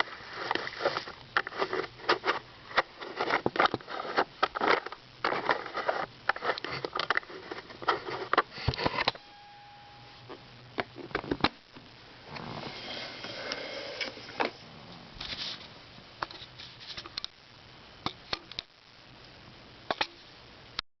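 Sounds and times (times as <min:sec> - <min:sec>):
rustling and scraping: 0:00.0 - 0:09.2, 0:12.3 - 0:17.2.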